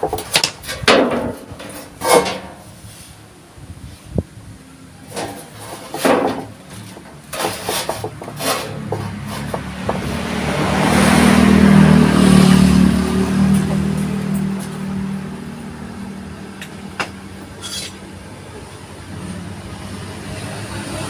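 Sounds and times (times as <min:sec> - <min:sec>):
sharp knocks and taps: 0:06.9 - 0:10.2
vehicle engine running: 0:08.8 - 0:17.6.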